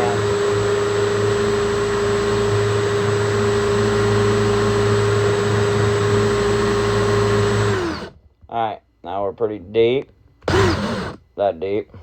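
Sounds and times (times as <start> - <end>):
drill bit cutting wood: 0.0 - 8.2, 10.4 - 11.2
electric drill motor whine: 0.0 - 8.2, 10.4 - 11.2.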